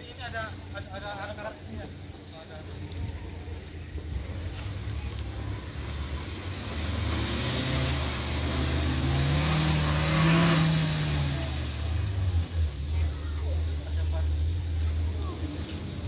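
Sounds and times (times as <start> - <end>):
hiss: 4.1 - 16.0
car engine revving under load: 4.4 - 13.0.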